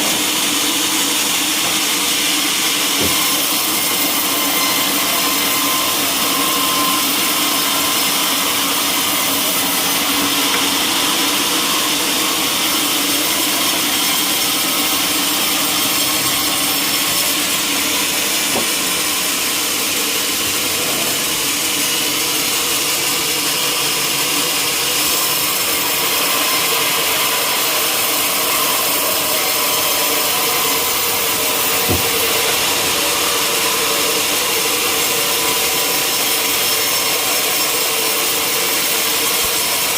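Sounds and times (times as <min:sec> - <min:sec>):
sawmill saw cutting timber: 0:00.0 - 0:39.9
brief knock: 0:31.9 - 0:32.6.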